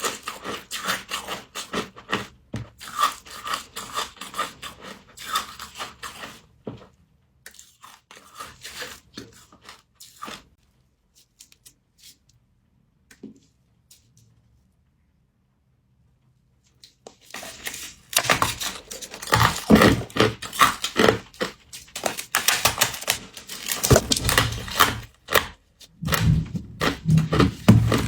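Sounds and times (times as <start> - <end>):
frost being chewed crunching: 16.8 - 28.0.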